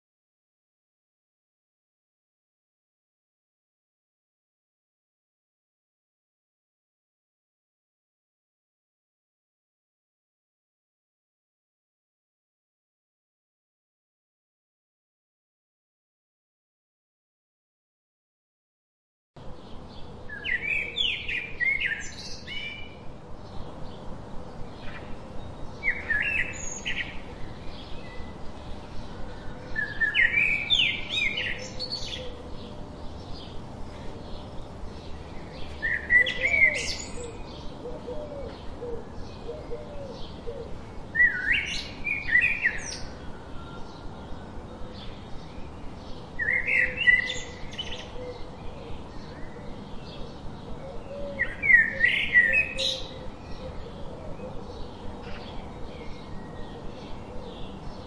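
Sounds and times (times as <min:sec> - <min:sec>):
birds chirping: 0:19.4 - 0:58.0.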